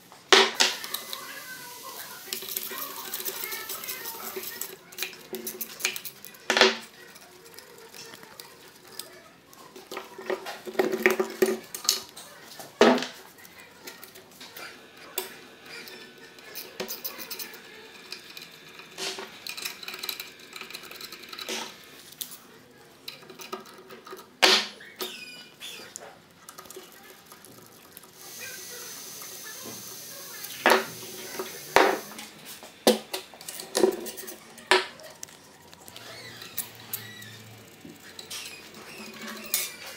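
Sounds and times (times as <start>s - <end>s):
steady hiss: 0.6s - 4.7s, 28.0s - 33.4s.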